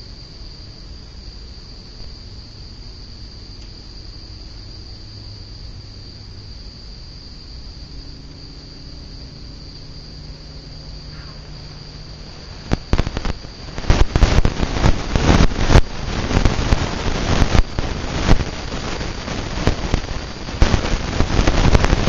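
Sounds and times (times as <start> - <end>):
ceiling fan humming: 0.0 - 22.0
crickets trilling: 0.0 - 22.0.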